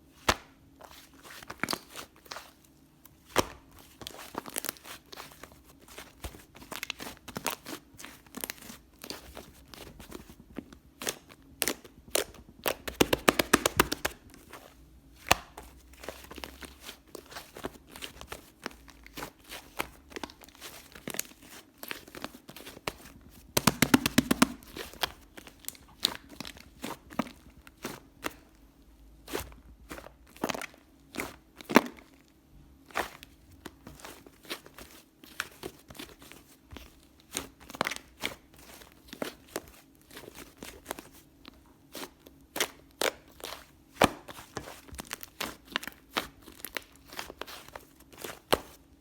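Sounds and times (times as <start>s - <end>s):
slime squished by hand: 11.0s - 28.4s
sticky clicks and air pops: 23.6s - 24.6s.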